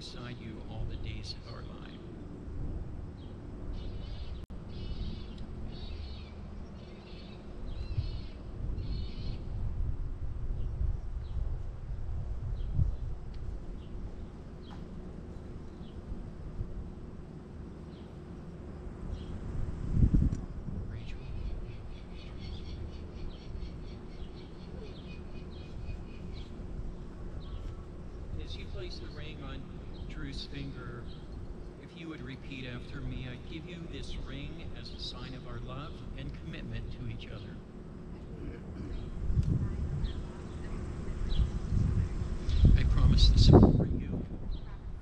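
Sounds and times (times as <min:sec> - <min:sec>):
small birds chirping: 0:00.0 - 0:02.4, 0:03.1 - 0:09.6, 0:12.5 - 0:19.5, 0:20.9 - 0:45.0
wind rumbling on microphone: 0:00.0 - 0:45.0
bird calling high-pitched: 0:03.7 - 0:09.5, 0:21.1 - 0:26.6.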